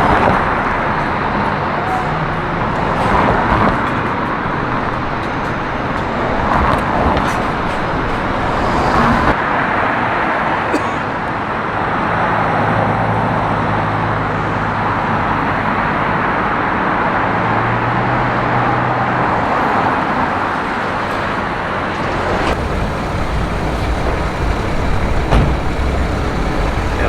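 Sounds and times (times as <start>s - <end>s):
low engine hum: 0.0s - 9.4s, 21.9s - 27.0s
passing cars: 0.0s - 27.0s.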